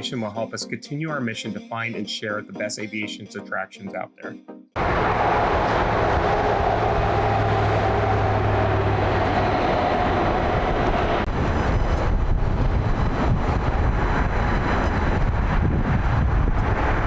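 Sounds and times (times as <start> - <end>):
jet engines running: 4.8 - 17.0.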